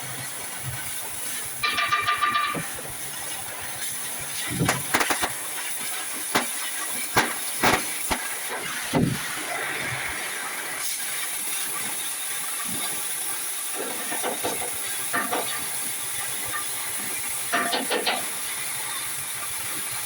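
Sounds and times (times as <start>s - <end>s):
knocks and clatter: 1.6s - 3.0s, 4.4s - 5.6s, 6.3s - 8.3s.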